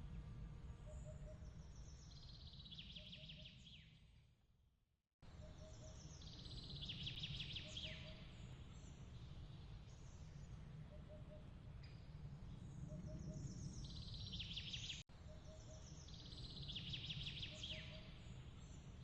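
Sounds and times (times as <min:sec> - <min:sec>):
low steady rumble: 0:00.0 - 0:02.8.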